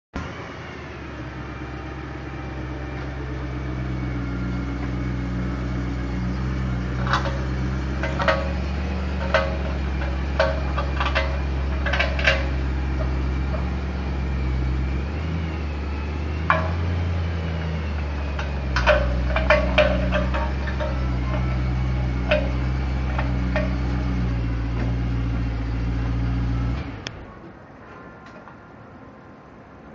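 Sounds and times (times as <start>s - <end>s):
car rolling slowly: 0.2s - 29.9s
wheel scraping: 6.1s - 26.8s.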